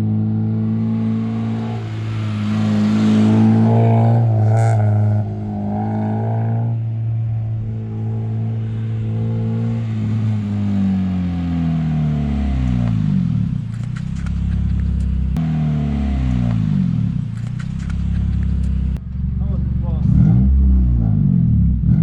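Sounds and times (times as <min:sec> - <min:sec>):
car engine running: 0:00.0 - 0:21.9
sharp clicks: 0:13.7 - 0:15.2, 0:17.3 - 0:18.9.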